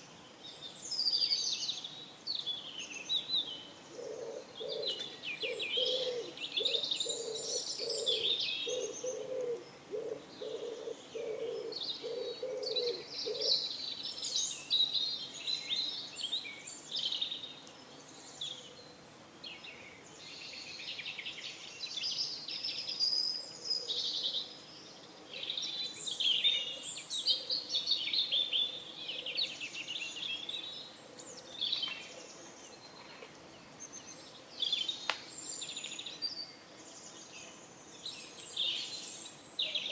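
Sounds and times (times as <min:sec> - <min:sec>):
songbirds chirping: 0:00.0 - 0:39.9
pigeon cooing: 0:04.0 - 0:13.5.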